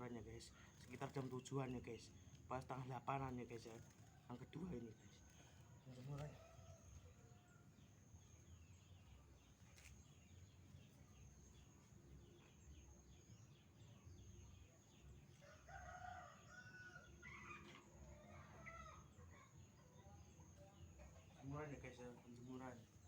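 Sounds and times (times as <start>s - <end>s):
rooster crowing: 15.4s - 17.7s.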